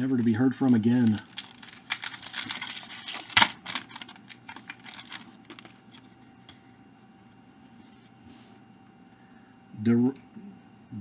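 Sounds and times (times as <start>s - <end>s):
cards clicking and rustling: 0.0s - 6.6s.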